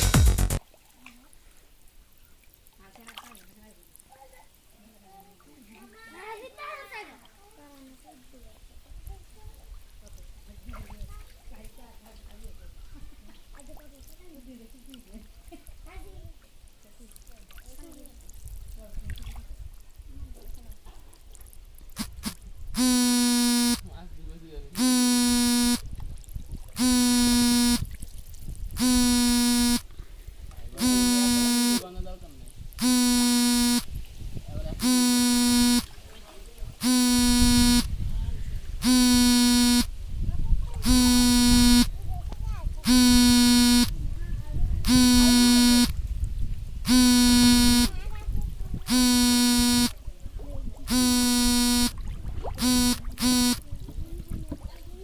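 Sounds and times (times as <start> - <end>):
electronic buzzer: 0.0 - 0.6, 22.0 - 23.8, 24.8 - 25.8, 26.8 - 27.9, 28.8 - 29.8, 30.8 - 31.8, 32.8 - 33.9, 34.8 - 35.9, 36.8 - 37.9, 38.8 - 39.9, 40.8 - 41.9, 42.8 - 43.9, 44.8 - 46.0, 46.9 - 47.9, 48.9 - 49.9, 50.9 - 52.0, 52.6 - 53.6.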